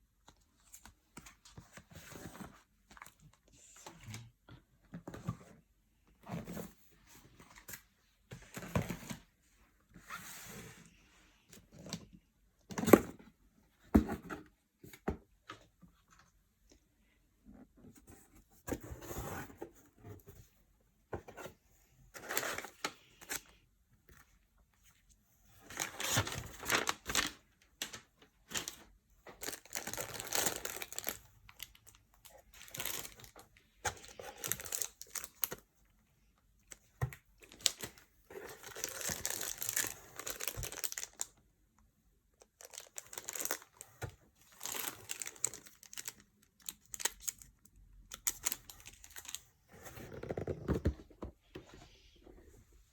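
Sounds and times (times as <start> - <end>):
paper and plastic rustling: 25.6 - 35.6, 36.7 - 41.3, 42.6 - 47.5.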